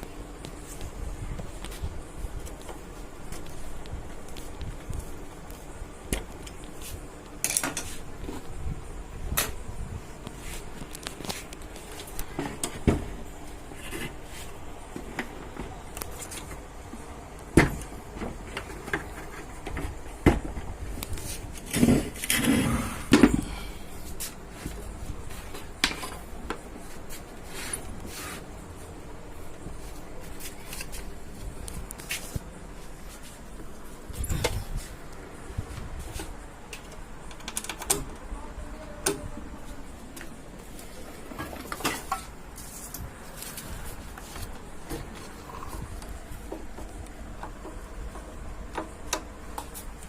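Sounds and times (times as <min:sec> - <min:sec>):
tools and parts clicking and knocking: 0:06.1 - 0:08.5, 0:36.2 - 0:38.3, 0:41.2 - 0:43.6, 0:44.3 - 0:50.0.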